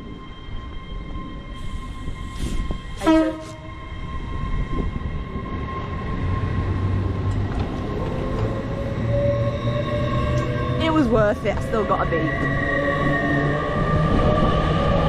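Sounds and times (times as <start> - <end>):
train engine hum: 0.0 - 15.0
train horn blast: 3.0 - 3.8.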